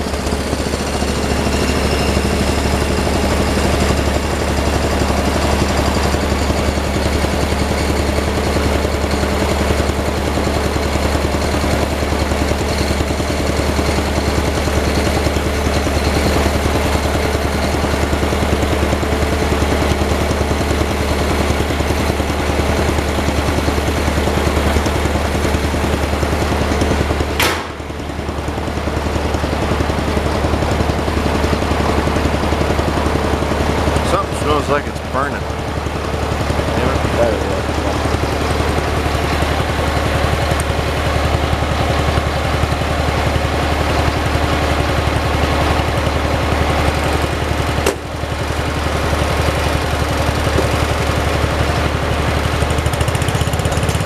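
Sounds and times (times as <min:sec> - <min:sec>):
snowplow engine running: 0:00.0 - 0:54.0
sharp click: 0:27.4 - 0:27.8.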